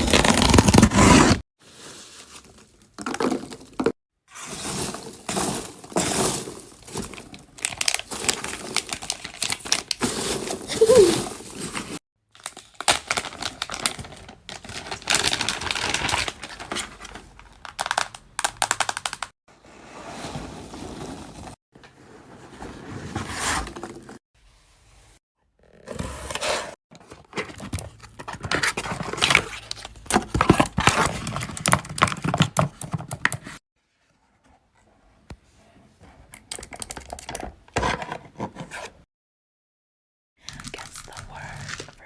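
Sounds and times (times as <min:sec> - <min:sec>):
crinkling and tearing: 0:40.5 - 0:42.0.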